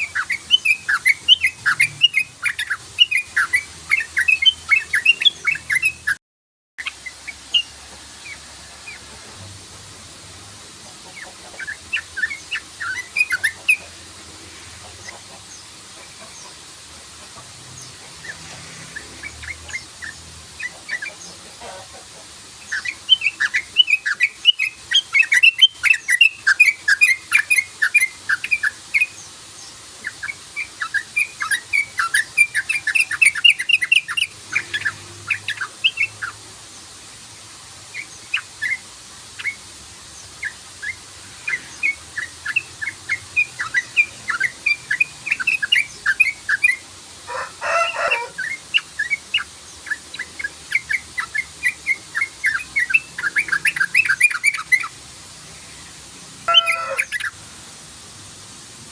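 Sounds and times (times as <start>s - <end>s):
bulbul chirping: 56.5s - 57.3s.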